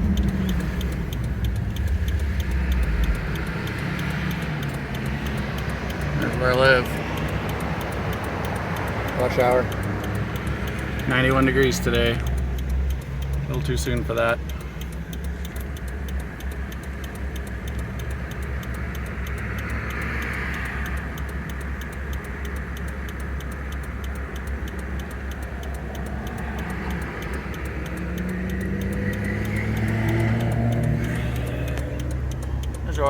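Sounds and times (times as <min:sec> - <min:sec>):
diesel engine running: 0:00.0 - 0:33.0
steady regular ticking: 0:00.0 - 0:33.0.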